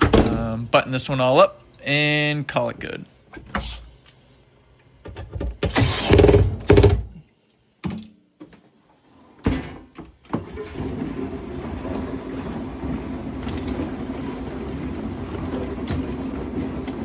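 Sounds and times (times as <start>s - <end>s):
dishwasher door clunks and knocks: 0.0s - 0.6s, 5.1s - 7.1s, 9.4s - 10.4s.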